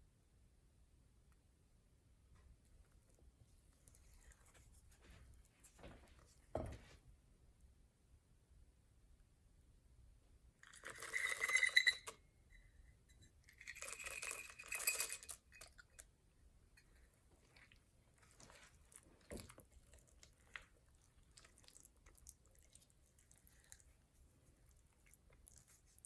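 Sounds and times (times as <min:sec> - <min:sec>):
metal utensil scraping cookware: 0:10.8 - 0:12.2.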